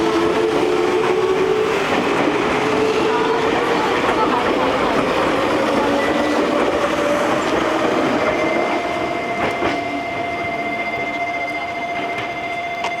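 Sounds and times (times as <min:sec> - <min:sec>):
train wheels squealing: 0:05.6 - 0:13.0.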